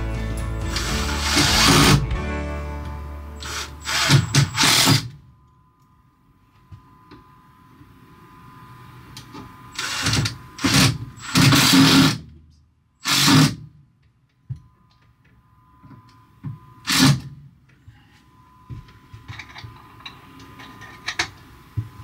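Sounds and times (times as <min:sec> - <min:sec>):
cordless drill driving screws: 0:00.7 - 0:02.0, 0:03.4 - 0:05.1, 0:09.8 - 0:12.2, 0:13.0 - 0:13.6.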